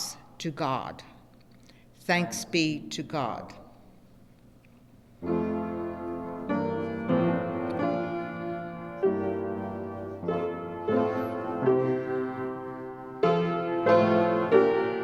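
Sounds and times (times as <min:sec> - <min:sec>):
keyboard playing sustained chords: 0:05.2 - 0:15.0.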